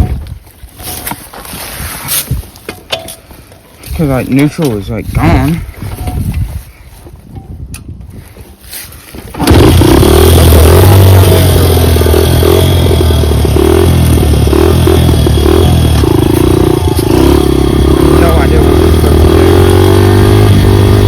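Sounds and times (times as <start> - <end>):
dirt bike engine running: 9.2 - 21.0.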